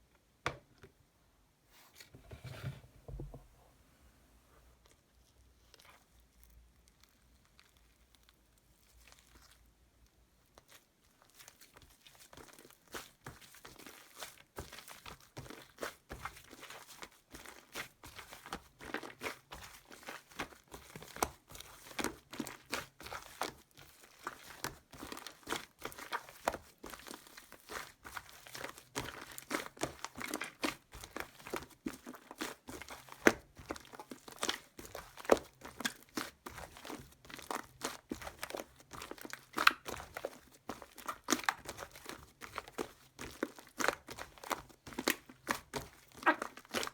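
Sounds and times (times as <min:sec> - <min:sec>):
crinkling material in hands: 0:04.5 - 0:46.9.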